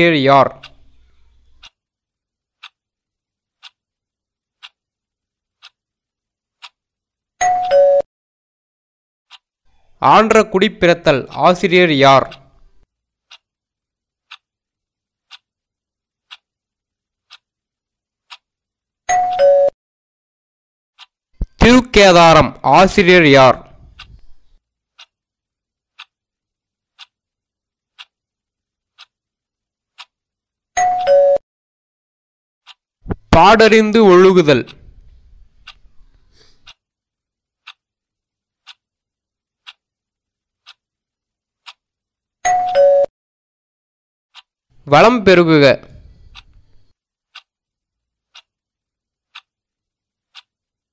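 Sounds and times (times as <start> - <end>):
clock ticking: 0.0 - 1.8, 2.5 - 2.8, 3.5 - 6.8, 9.3 - 13.6, 14.2 - 14.5, 15.2 - 15.6, 16.2 - 16.6, 17.2 - 17.6, 18.2 - 18.5, 21.0 - 24.2, 24.9 - 25.2, 25.9 - 26.2, 26.9 - 28.3, 28.9 - 29.3, 29.9 - 30.2, 32.6 - 36.8, 37.6 - 41.0, 41.6 - 41.9, 44.3 - 48.6, 49.2 - 50.7.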